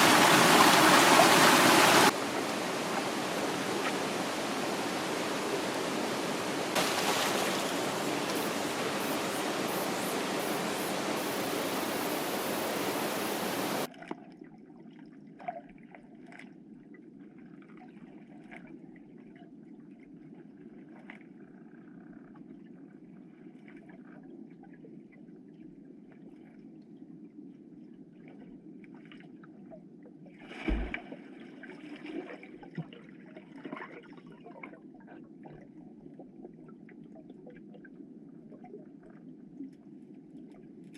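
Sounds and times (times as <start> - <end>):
stream water rushing: 0.0 - 13.9
small water splashes: 0.0 - 16.5, 30.4 - 37.8
thump: 30.7 - 31.0.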